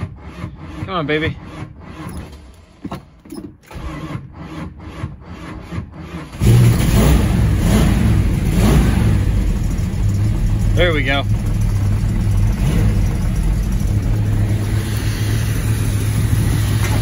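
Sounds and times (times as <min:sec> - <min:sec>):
engine cranking by starter: 0:00.0 - 0:17.0
car engine revving: 0:03.8 - 0:17.0.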